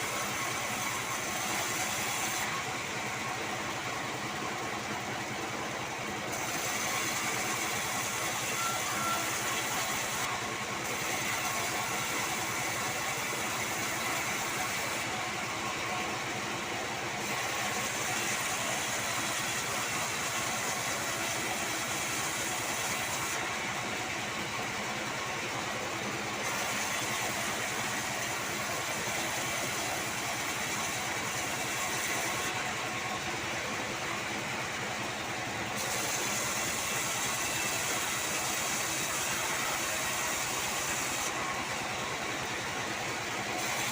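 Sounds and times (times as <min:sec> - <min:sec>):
band sawmill running: 0:00.0 - 0:43.9
high hiss of saw cutting wood: 0:35.8 - 0:41.4.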